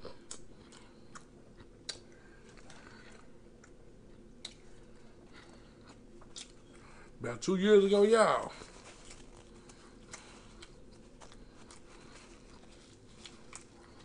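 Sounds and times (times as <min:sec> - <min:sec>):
person chewing food: 0:00.0 - 0:07.2, 0:08.6 - 0:14.0
room hum: 0:00.0 - 0:14.0.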